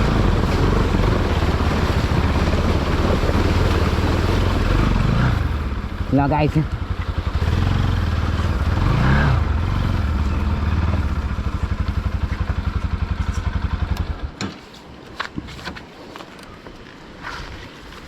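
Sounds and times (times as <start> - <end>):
motorcycle engine revving and idling: 0.0 - 14.4.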